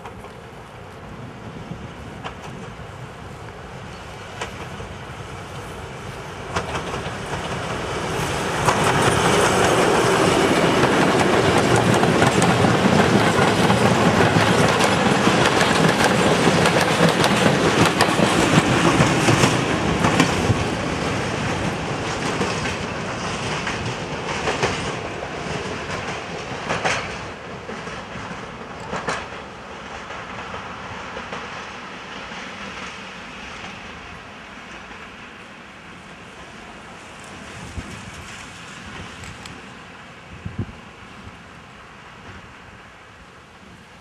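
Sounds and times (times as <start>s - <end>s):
diesel locomotive passing: 0.0s - 44.0s
wheels clacking over rail joints: 6.4s - 33.0s.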